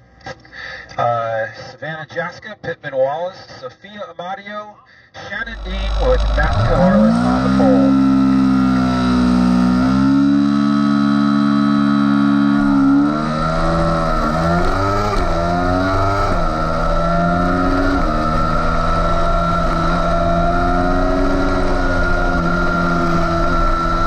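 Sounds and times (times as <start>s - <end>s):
motorcycle engine revving and accelerating: 5.4s - 24.0s.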